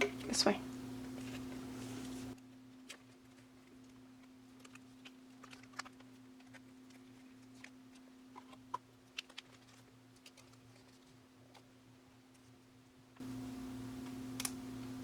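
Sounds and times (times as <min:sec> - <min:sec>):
low electrical hum: 0:00.0 - 0:15.0
plastic sleeves being handled: 0:01.0 - 0:12.5.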